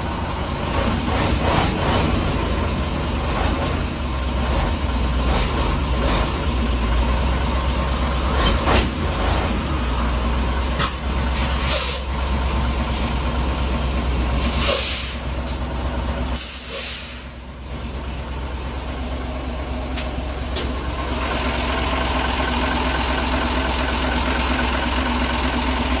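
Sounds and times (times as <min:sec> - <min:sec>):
diesel truck engine running: 0:00.0 - 0:26.0
air brake hisses: 0:11.4 - 0:12.1, 0:14.4 - 0:15.4, 0:16.3 - 0:17.4.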